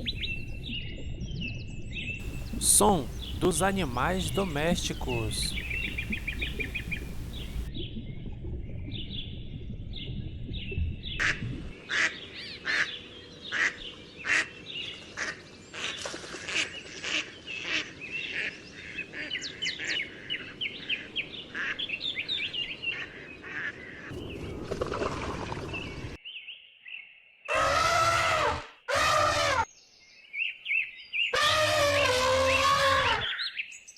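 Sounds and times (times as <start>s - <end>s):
ducks quacking: 2.2s - 7.7s
small birds chirping: 2.2s - 7.7s.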